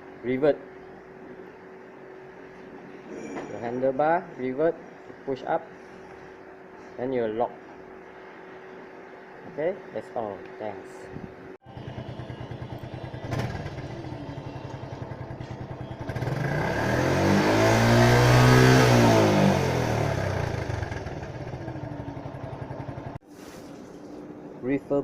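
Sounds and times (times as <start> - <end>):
motorcycle engine running: 11.6 - 23.2.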